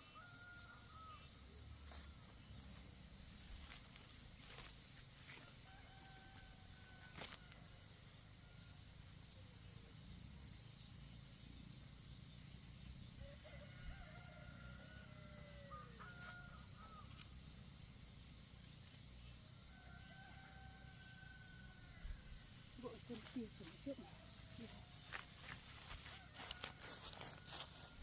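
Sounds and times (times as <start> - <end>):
distant rooster crowing: 0.0 - 1.4, 5.3 - 8.0, 13.2 - 17.2, 19.6 - 22.2, 23.9 - 28.0.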